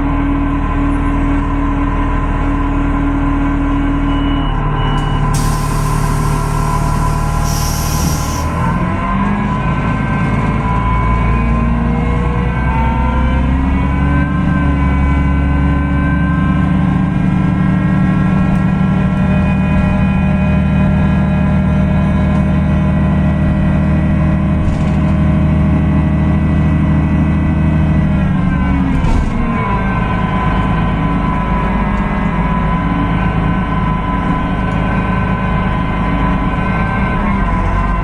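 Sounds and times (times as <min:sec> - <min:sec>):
bus diesel engine running: 0:00.0 - 0:38.0
thin whine: 0:05.0 - 0:08.8.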